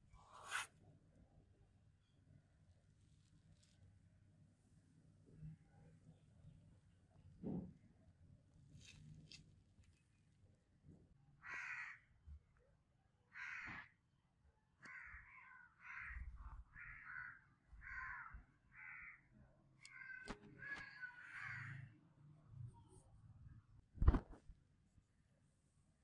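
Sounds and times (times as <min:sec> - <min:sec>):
bird harsh calls: 0:19.9 - 0:21.8.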